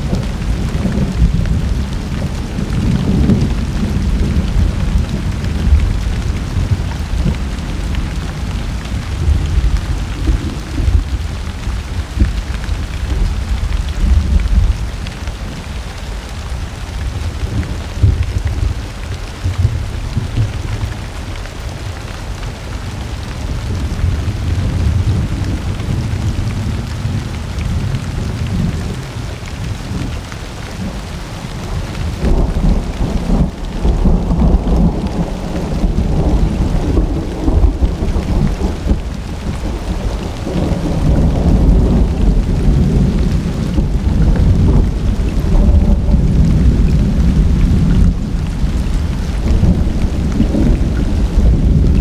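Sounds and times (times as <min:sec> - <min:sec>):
rolling thunder: 0:00.0 - 0:15.6, 0:30.8 - 0:52.0
steady rain falling: 0:00.0 - 0:52.0.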